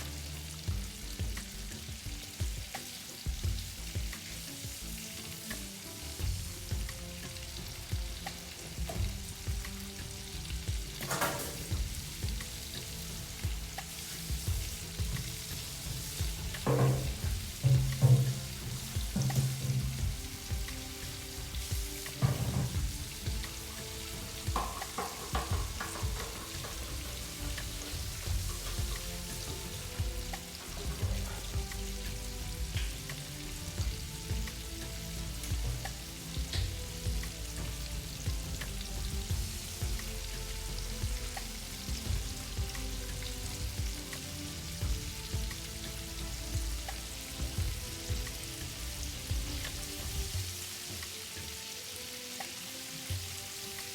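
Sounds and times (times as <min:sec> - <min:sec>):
food sizzling in a pan: 0:00.0 - 0:53.9
knocks: 0:16.5 - 0:20.7, 0:22.0 - 0:23.5, 0:24.4 - 0:27.7.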